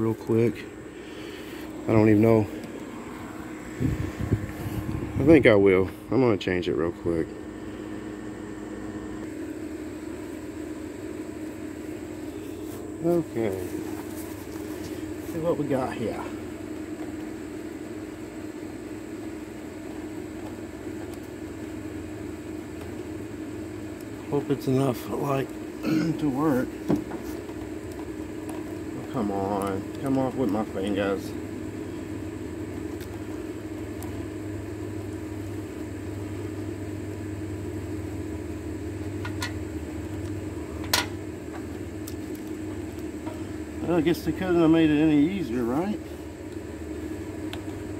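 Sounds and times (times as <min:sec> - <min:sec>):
mechanical hum with hiss: 0:00.0 - 0:47.9.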